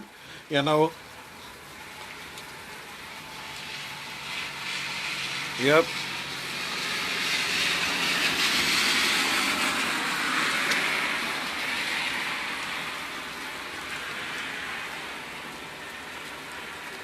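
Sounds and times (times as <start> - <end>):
steady rain: 0.0 - 17.0
tyres hissing on wet road: 0.0 - 17.0.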